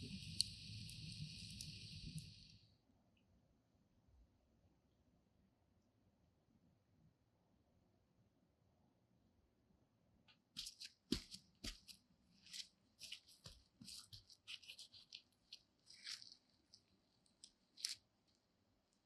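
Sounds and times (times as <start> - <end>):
crisp rustling and crackling: 10.6 - 19.0.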